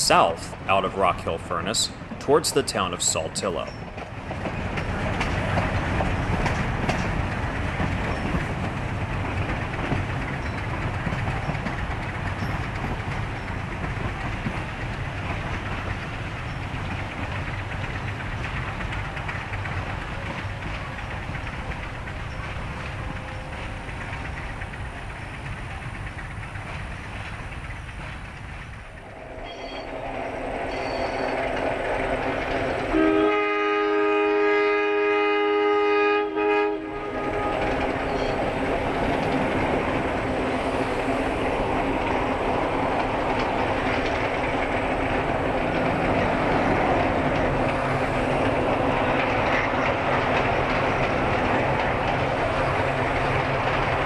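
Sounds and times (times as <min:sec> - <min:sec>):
train engine and wheels rumbling: 0:00.0 - 0:54.0
locomotive air horn blast: 0:32.9 - 0:37.9.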